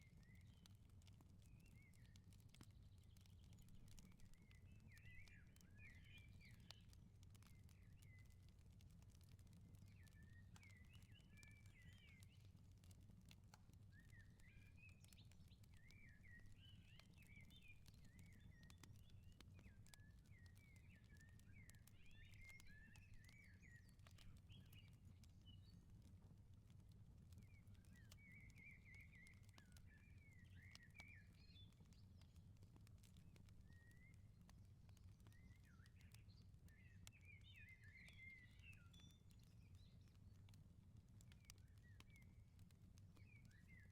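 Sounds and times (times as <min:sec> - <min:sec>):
wood fire crackling: 0:00.0 - 0:37.4, 0:38.0 - 0:43.9
songbirds twittering: 0:13.9 - 0:25.9, 0:27.3 - 0:40.5, 0:41.2 - 0:43.9.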